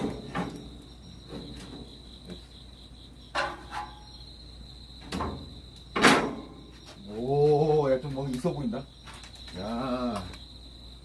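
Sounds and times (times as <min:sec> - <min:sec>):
sharp knocks: 0:05.0 - 0:06.6.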